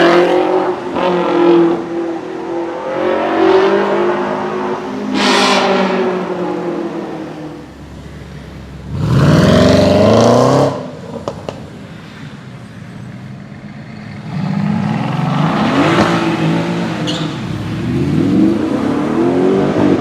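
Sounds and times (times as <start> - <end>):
car engine revving: 8.8 - 10.9.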